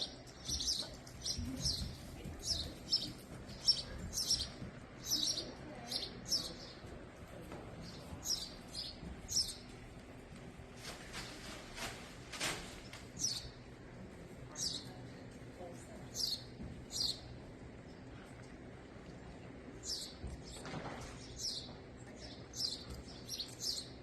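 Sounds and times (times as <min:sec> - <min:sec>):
small bird chirping: 0:00.0 - 0:06.9, 0:07.8 - 0:09.7, 0:13.2 - 0:13.6, 0:16.1 - 0:17.3, 0:19.8 - 0:24.0.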